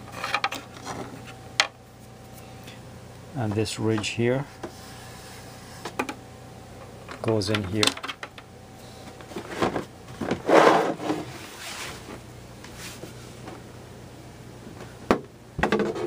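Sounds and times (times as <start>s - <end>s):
computer case panel scraping: 9.4s - 12.1s.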